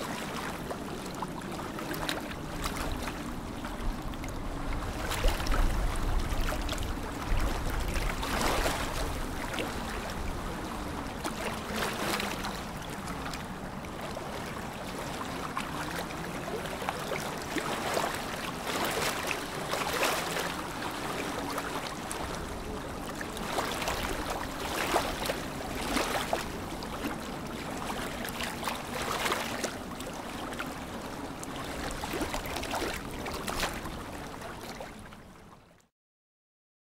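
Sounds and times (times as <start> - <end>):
lake water lapping: 0.0 - 35.8
water splashes: 0.0 - 35.8.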